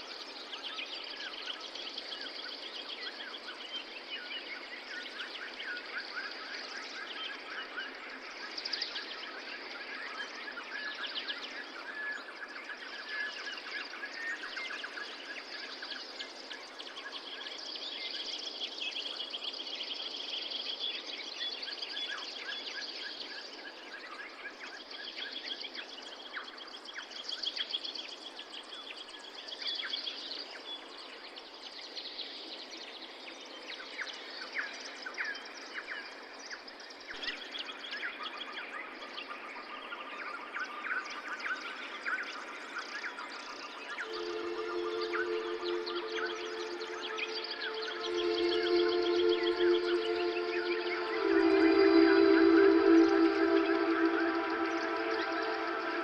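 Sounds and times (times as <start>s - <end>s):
background hiss: 44.0s - 56.0s.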